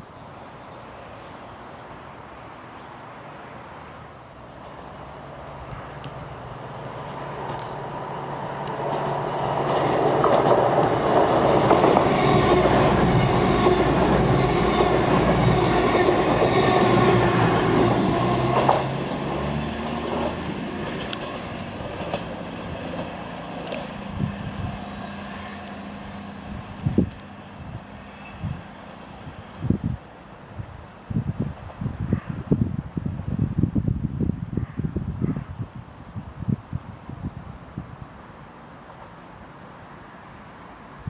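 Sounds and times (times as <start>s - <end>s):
passenger train passing: 0.9s - 31.8s
wheels clattering over rail joints: 8.6s - 24.0s.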